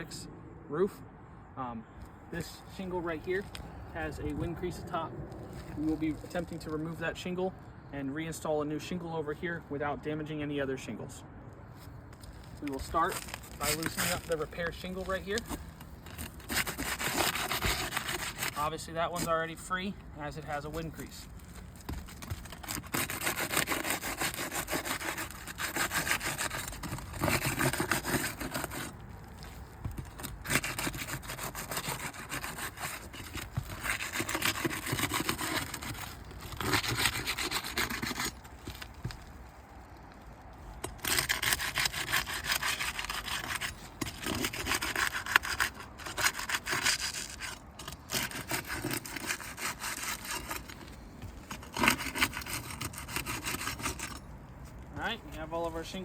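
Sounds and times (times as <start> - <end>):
roof shingles scraping loose: 12.2 - 55.1.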